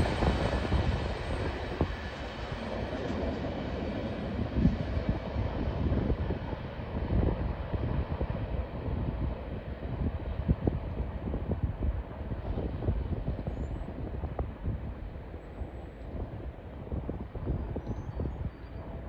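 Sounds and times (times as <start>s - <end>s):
freight train wheels rumbling: 0.0s - 6.9s.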